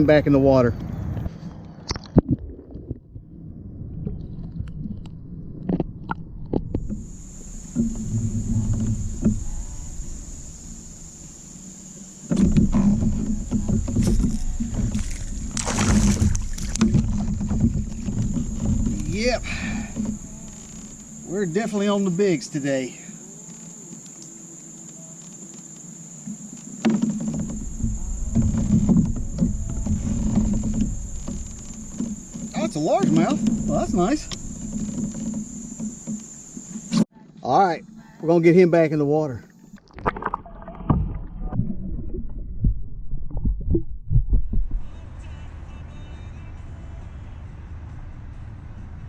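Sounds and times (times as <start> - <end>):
crickets and insects droning: 0.0 - 1.6, 4.1 - 41.2
loud low rumbling: 2.4 - 11.6, 27.5 - 32.3
knocks and clatter: 12.3 - 20.2, 26.8 - 37.0.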